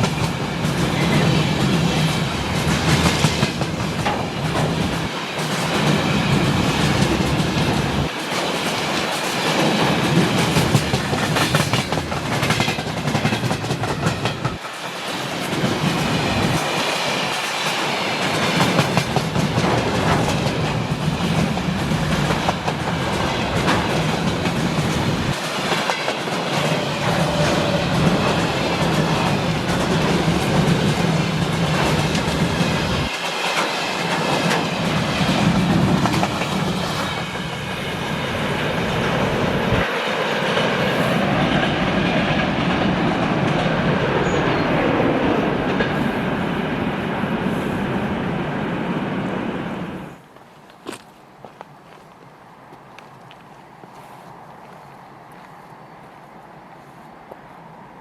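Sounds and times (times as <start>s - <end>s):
train wheels clacking over rail joints: 0.0s - 44.6s.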